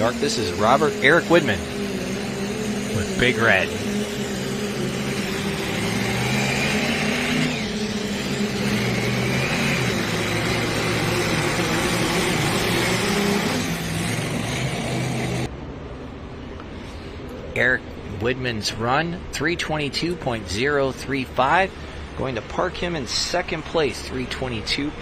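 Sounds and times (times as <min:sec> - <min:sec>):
diesel truck engine under load: 0:00.0 - 0:15.5.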